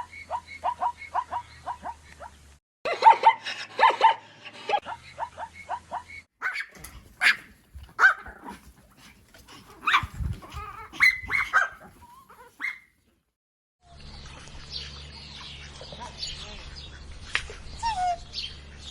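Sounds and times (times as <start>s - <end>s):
animal barking and yipping: 0.0s - 13.0s.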